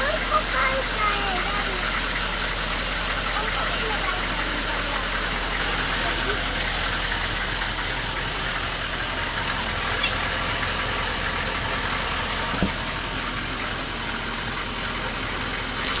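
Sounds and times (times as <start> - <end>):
vehicle engine idling: 0.0 - 16.0
short thump: 12.5 - 12.9.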